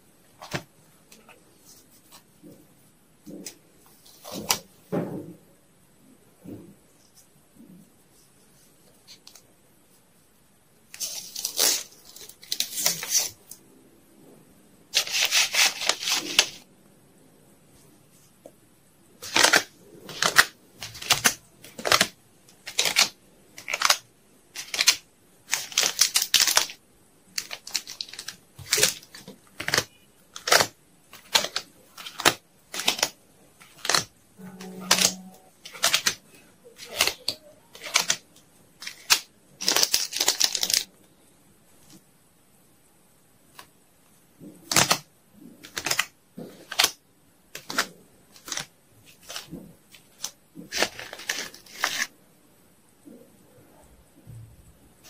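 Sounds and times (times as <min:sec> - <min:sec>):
packing materials rustling: 0:15.0 - 0:16.6, 0:24.6 - 0:38.2, 0:38.8 - 0:40.9, 0:47.6 - 0:52.1.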